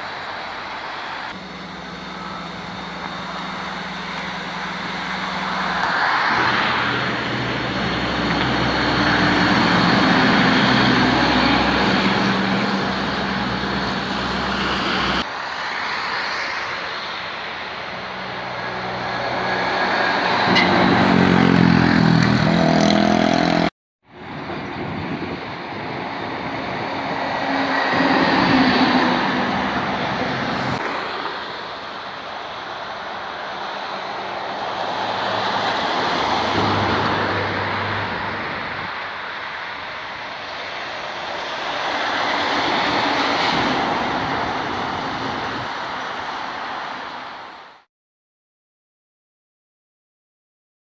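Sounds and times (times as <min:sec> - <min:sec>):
diesel trucks driving by: 0:00.0 - 0:47.8.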